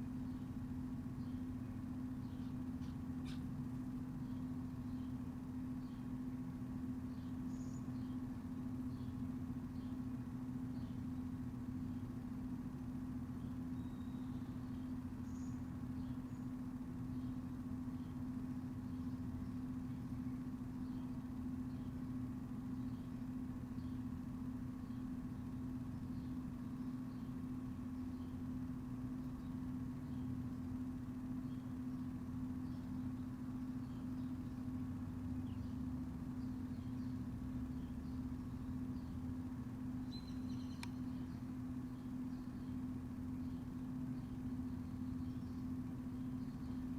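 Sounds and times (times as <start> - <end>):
low machine hum: 0.0 - 46.9
faint high chirps: 13.4 - 16.6, 40.0 - 42.8.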